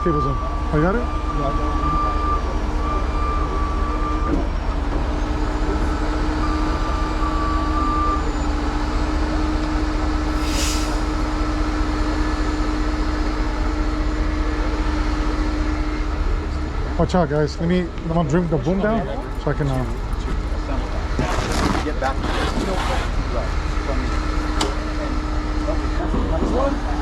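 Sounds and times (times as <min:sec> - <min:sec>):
truck engine under load: 0:00.0 - 0:18.4
short hiss: 0:10.3 - 0:11.2.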